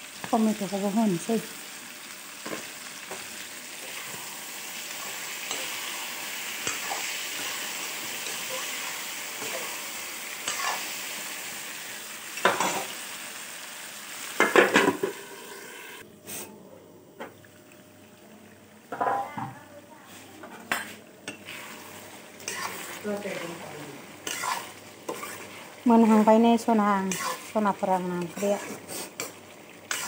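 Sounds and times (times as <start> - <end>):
food sizzling in a pan: 0.0 - 16.6, 17.4 - 30.0
metal spoon scraping a pan: 5.0 - 9.8, 10.4 - 10.9, 20.7 - 23.6, 24.2 - 30.0.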